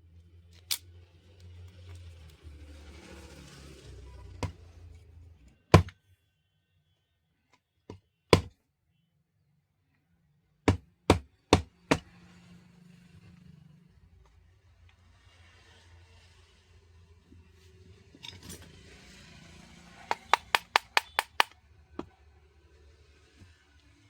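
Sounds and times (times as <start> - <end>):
sharp knocks on hard surface: 8.3 - 8.5, 10.7 - 12.1, 20.1 - 21.5.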